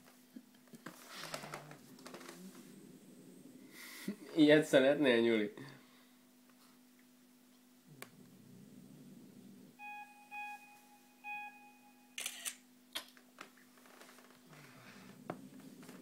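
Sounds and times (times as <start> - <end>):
short beeps: 9.8 - 12.5
camera shutter sound: 12.2 - 12.6.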